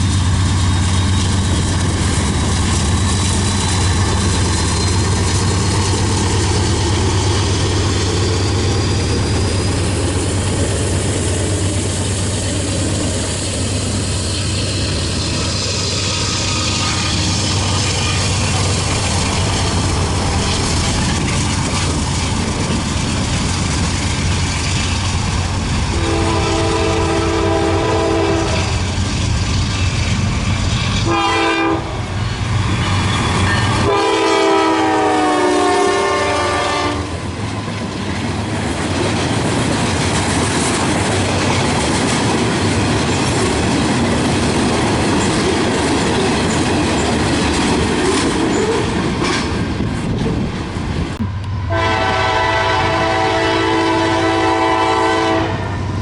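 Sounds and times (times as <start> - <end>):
rail noise: 0.0 - 56.0
train engine rumble: 0.0 - 56.0
locomotive horn blasts: 25.9 - 28.8, 31.0 - 32.1, 33.7 - 37.1, 51.7 - 55.8.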